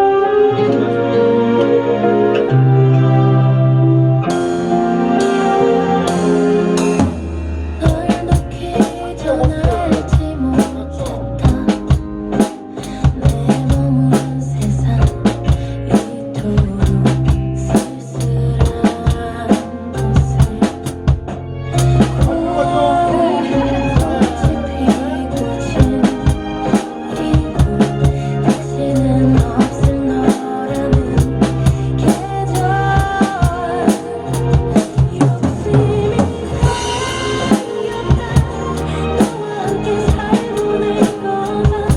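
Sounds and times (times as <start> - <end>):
recorded pop ballad: 0.0 - 41.9
drum kit playing: 4.2 - 41.9.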